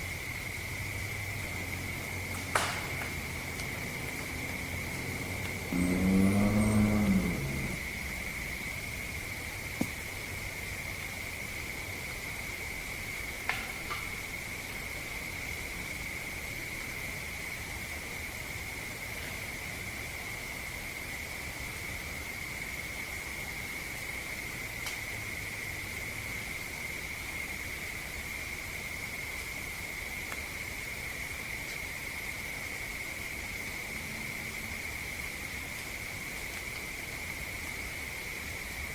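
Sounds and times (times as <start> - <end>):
insect high-pitched trill: 0.0 - 9.7
crickets trilling: 0.0 - 38.9
recorder hiss: 0.0 - 38.9
faint ticks: 24.8 - 25.0.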